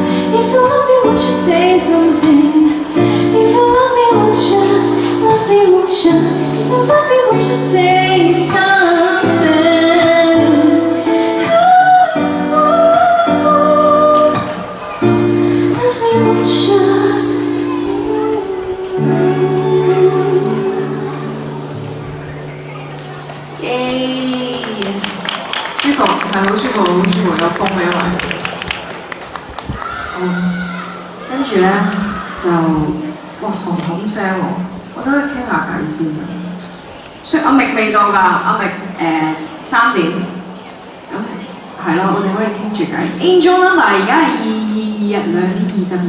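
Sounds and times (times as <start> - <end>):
woman singing: 0.0 - 21.7, 23.6 - 25.2, 41.9 - 46.0
held accompaniment chords: 0.0 - 37.4.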